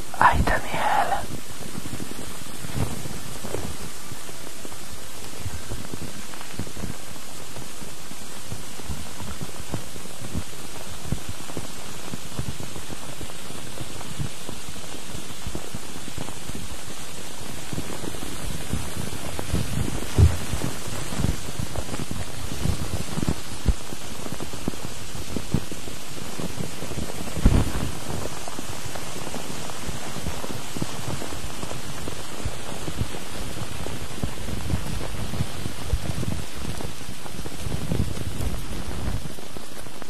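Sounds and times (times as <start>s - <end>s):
steady white noise hiss: 0.0s - 40.0s
loud thump: 20.2s - 20.6s
soft low knocks: 20.2s - 20.6s.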